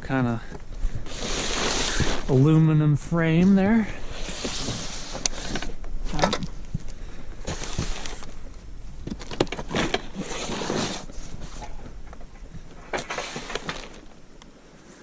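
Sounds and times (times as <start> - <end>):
packaging rustling and scraping: 0.8 - 2.6, 4.0 - 6.4, 7.4 - 14.2.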